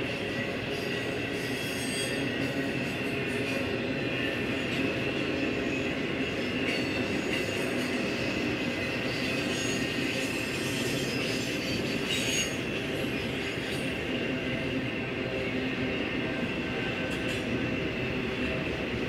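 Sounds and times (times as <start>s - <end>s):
steel wheels rumbling on rail: 0.0s - 19.0s
high wheel squeal: 5.4s - 14.0s.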